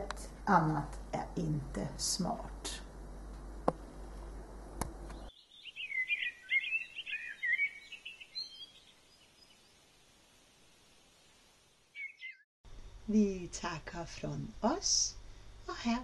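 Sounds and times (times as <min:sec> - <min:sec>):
faint room hum: 0:00.0 - 0:05.3, 0:12.7 - 0:16.0
songbird singing high notes: 0:05.2 - 0:09.6, 0:12.0 - 0:12.4.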